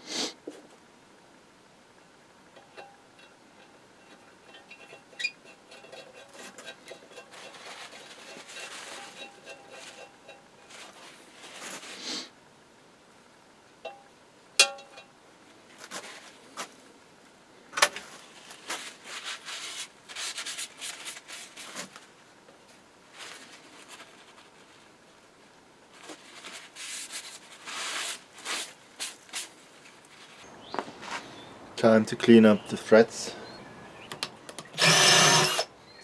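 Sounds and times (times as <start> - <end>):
scraping and rubbing on metal: 2.8 - 12.2, 18.2 - 22.0, 26.0 - 31.3.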